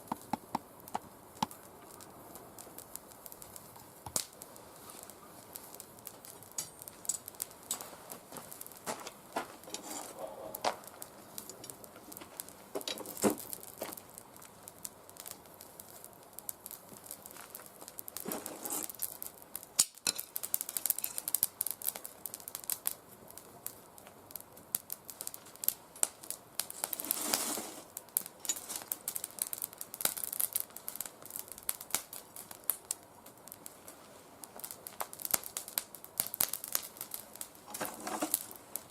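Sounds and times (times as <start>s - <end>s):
twigs crackling in a fire: 0.0s - 38.9s.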